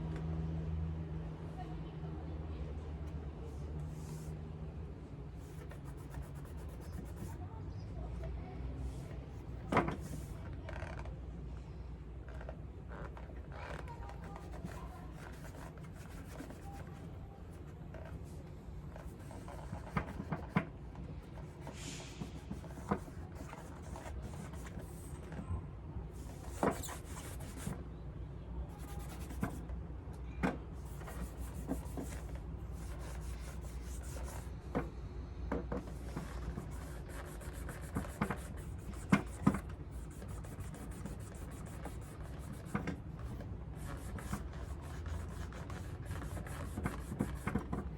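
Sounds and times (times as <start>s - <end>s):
leather shoe being rubbed: 30.8s - 34.5s, 36.0s - 47.9s.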